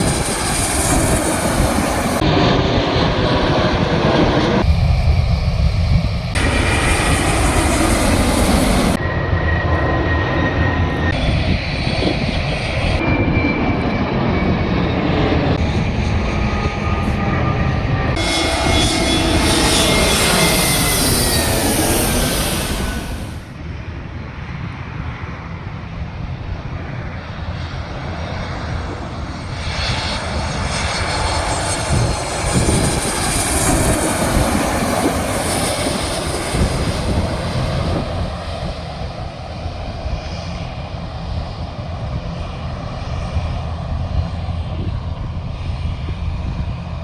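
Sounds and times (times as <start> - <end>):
high turbine whine: 0.0 - 23.7, 29.2 - 39.6
jet engine noise: 0.0 - 47.0.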